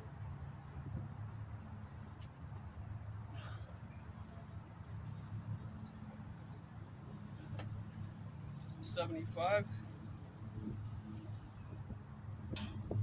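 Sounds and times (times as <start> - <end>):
wind rumble on microphone: 0.0 - 2.9, 9.7 - 13.0.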